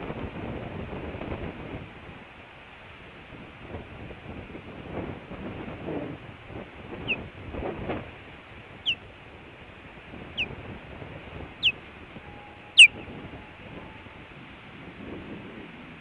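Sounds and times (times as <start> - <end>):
wind rumble: 0.0 - 16.0
distant traffic: 6.1 - 15.0
osprey chirps: 7.0 - 7.2.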